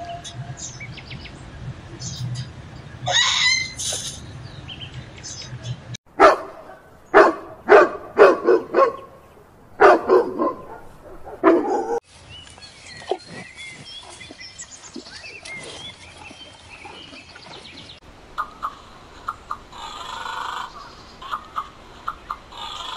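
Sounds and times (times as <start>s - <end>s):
dog barking: 6.2s - 9.2s, 9.8s - 12.0s.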